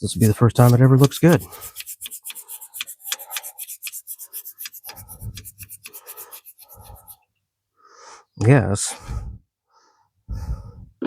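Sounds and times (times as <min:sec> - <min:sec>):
brush scrubbing metal: 0:00.0 - 0:07.2.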